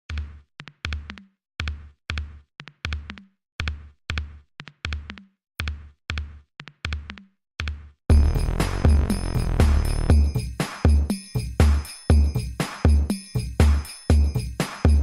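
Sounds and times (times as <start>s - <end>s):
electronic drum beat: 8.1s - 11.2s.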